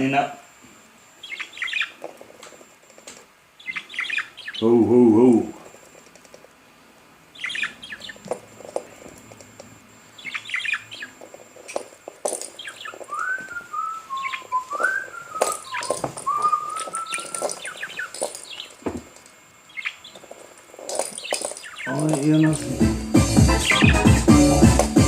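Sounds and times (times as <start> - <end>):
birds chirping: 0.0 - 25.0
wavering whistle: 13.1 - 18.0.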